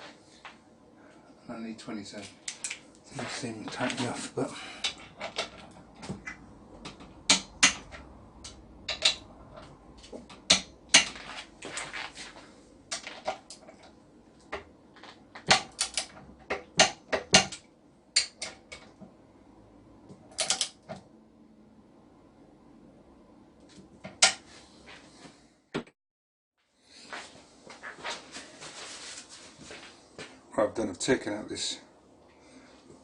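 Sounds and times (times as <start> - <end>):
hand tools clicking on metal: 15.5 - 17.6, 20.3 - 20.8.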